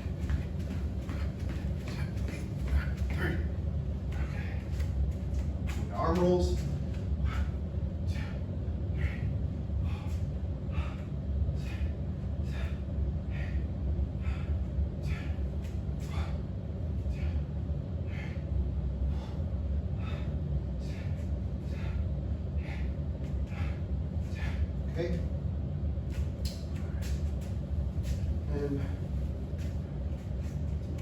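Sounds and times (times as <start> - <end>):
person breathing hard: 0.0 - 5.4, 7.1 - 25.2
steady low hum: 0.0 - 31.0.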